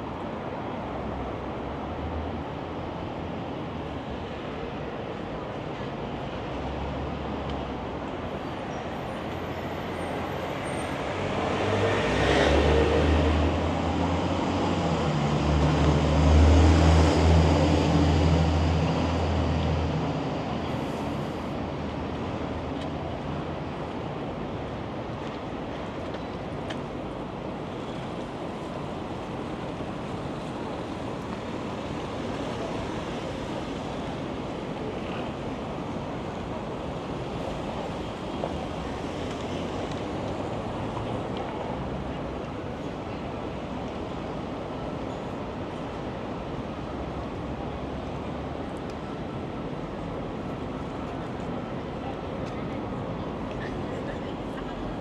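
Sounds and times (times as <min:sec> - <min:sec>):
wind: 0:00.0 - 0:55.0
traffic hiss: 0:19.9 - 0:24.4.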